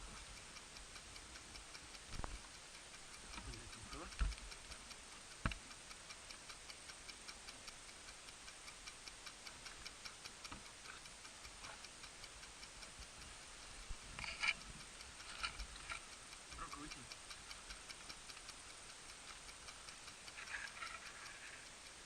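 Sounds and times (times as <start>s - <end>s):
faint even ticking: 0.0s - 22.0s
clatter: 17.9s - 22.0s.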